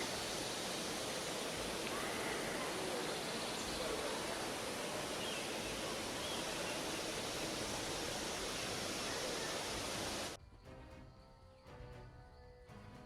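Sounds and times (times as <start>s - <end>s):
water rushing: 0.0s - 10.4s.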